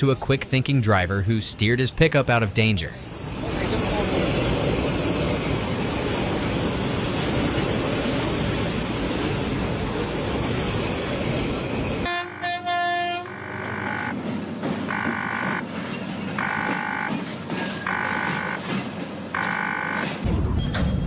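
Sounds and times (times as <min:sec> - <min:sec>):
horn blasts: 0:12.0 - 0:14.2, 0:14.9 - 0:15.6, 0:16.4 - 0:17.2, 0:17.8 - 0:20.2.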